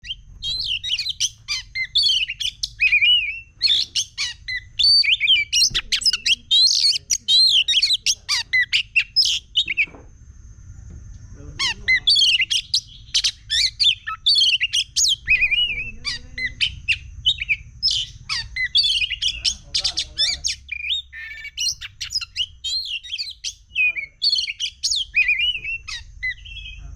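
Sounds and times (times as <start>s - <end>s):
magpie-robin singing whistles: 0.0s - 10.0s, 11.6s - 26.9s.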